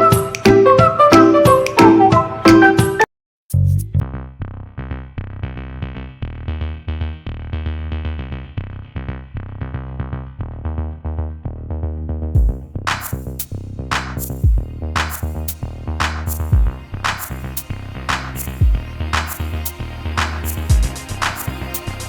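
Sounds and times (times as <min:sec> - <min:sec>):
electronic music with heavy bass: 0:12.4 - 0:22.0.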